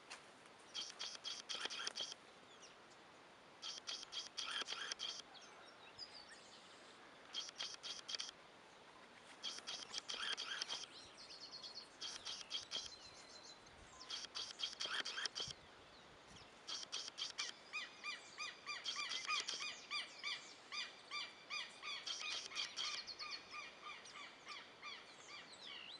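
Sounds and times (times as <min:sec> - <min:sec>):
birds chirping: 0:00.6 - 0:25.9
bird song repeated short notes: 0:00.7 - 0:02.6, 0:03.6 - 0:05.3, 0:07.2 - 0:08.4, 0:09.4 - 0:15.7, 0:16.4 - 0:25.9.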